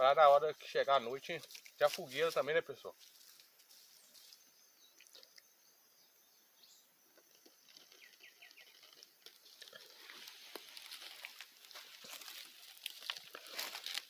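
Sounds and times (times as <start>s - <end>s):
bird chirps: 3.9s - 8.9s.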